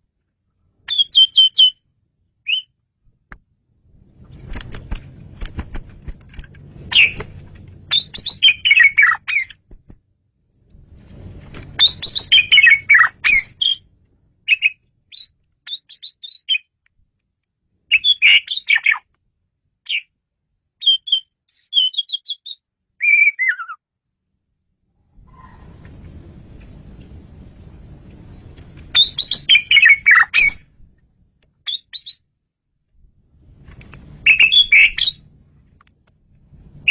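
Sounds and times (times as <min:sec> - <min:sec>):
starling singing whistles: 0:00.9 - 0:01.8, 0:02.5 - 0:02.7, 0:06.9 - 0:07.2, 0:07.9 - 0:09.6, 0:11.8 - 0:13.8, 0:14.5 - 0:16.7, 0:17.9 - 0:18.9, 0:20.8 - 0:23.8, 0:28.9 - 0:30.7, 0:31.7 - 0:32.2, 0:34.2 - 0:35.2
low background rumble: 0:01.7 - 0:15.6, 0:24.2 - 0:31.6, 0:32.3 - 0:36.9.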